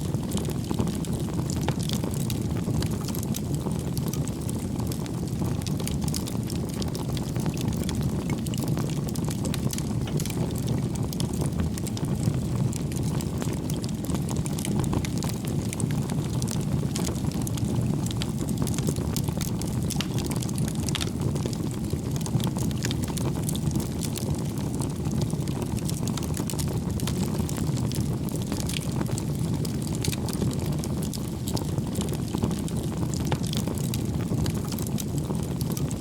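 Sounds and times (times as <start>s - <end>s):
fire crackles and pops: 0.0s - 36.0s
flames rumbling: 0.0s - 36.0s.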